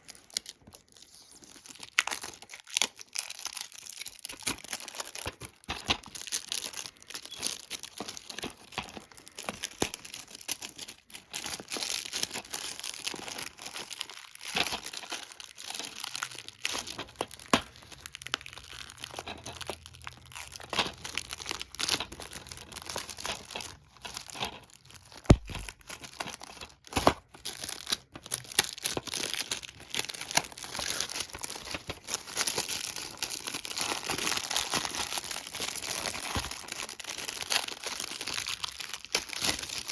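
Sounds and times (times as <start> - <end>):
plastic wrap crinkling and tearing: 0.0 - 39.9
sharp knocks: 25.3 - 25.7.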